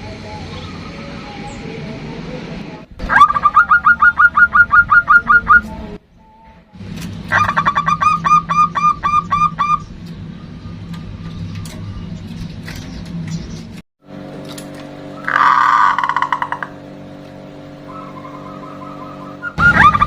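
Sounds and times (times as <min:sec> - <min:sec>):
dove calling clipped notes: 0:03.0 - 0:05.9, 0:07.3 - 0:13.8, 0:15.1 - 0:16.8, 0:17.7 - 0:20.0.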